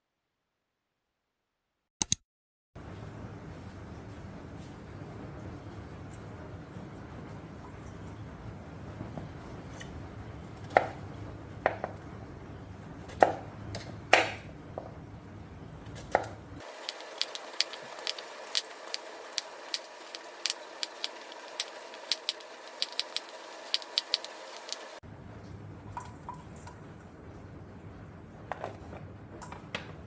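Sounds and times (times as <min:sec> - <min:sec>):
knife chopping on cutting board: 0:10.6 - 0:11.0, 0:13.1 - 0:14.9, 0:16.0 - 0:24.9.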